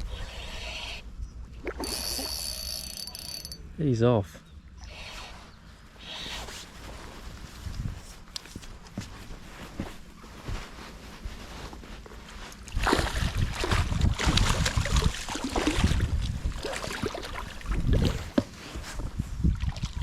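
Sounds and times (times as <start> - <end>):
water splashing and sloshing: 1.5 - 2.3, 10.6 - 20.0
wind on microphone: 12.7 - 20.0.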